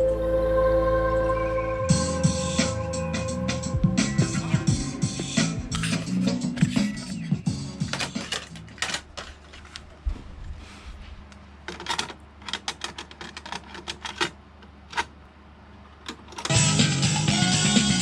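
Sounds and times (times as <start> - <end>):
tape playback: 1.2 - 8.7, 16.5 - 18.0.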